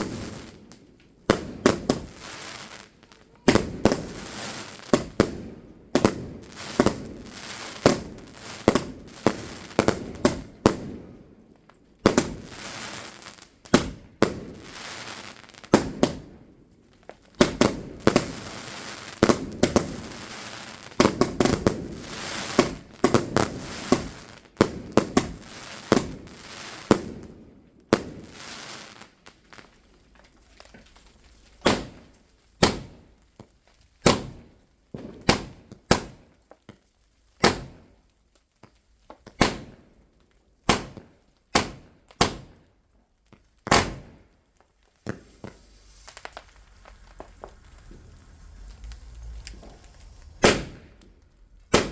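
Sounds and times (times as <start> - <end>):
fireworks bangs: 0.0 - 11.3, 12.0 - 29.6, 31.6 - 33.2, 34.0 - 36.3, 37.4 - 37.9, 39.3 - 39.9, 43.6 - 51.9
fireworks crackling: 0.0 - 51.9.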